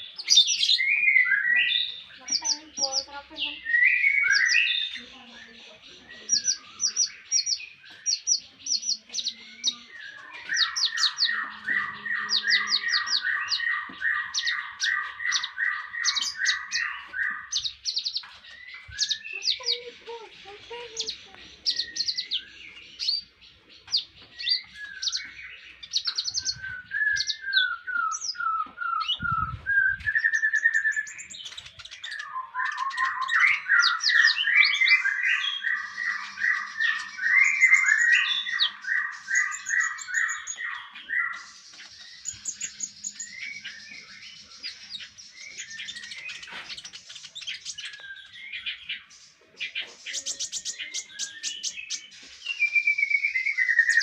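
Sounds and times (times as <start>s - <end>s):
songbird chirps and whistles: 0.0s - 54.0s
fast repeated bird notes: 6.2s - 49.0s.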